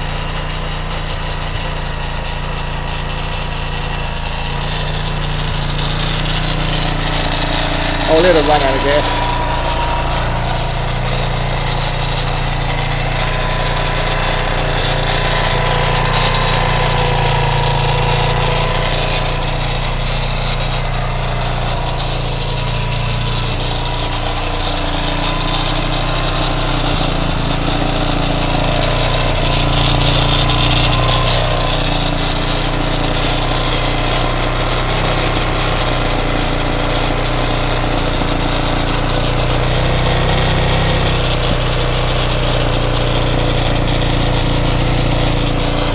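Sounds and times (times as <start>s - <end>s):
motorcycle engine idling: 0.0s - 45.9s.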